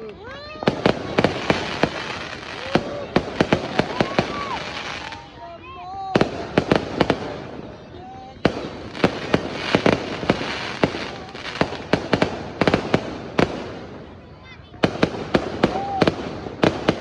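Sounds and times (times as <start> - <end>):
firecrackers crackling: 0.0 - 17.0
fireworks bangs: 0.1 - 17.0.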